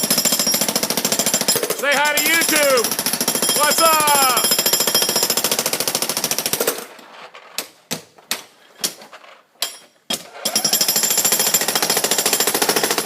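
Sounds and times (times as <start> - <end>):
jackhammer breaking concrete: 0.0 - 6.9, 10.2 - 13.0.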